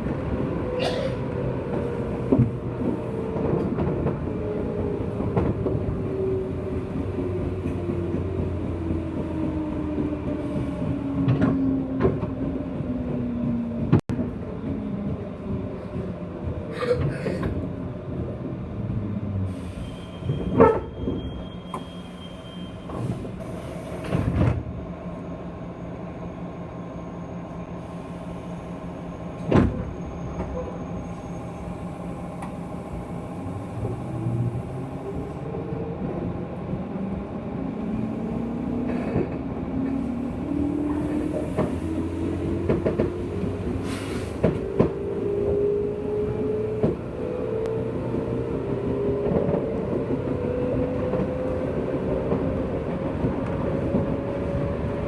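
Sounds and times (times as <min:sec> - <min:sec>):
train knocks and clunks: 0:00.0 - 0:18.9, 0:20.1 - 0:25.2, 0:29.3 - 0:30.9, 0:38.4 - 0:55.0.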